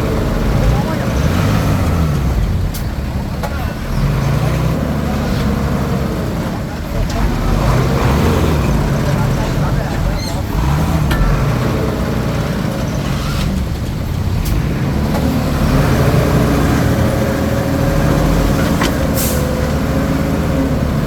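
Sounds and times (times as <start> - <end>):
bulldozer diesel engine running: 0.0 - 21.0
metallic clanks: 8.6 - 15.6.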